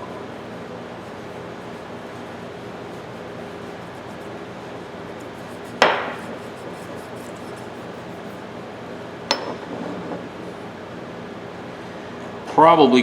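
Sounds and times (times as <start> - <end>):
metallic knocks of pipe wrench: 9.3 - 9.6.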